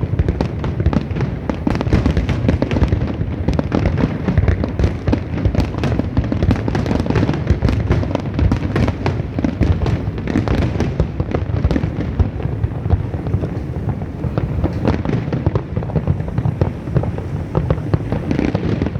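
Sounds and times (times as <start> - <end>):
fireworks bangs and crackles: 0.0 - 18.9.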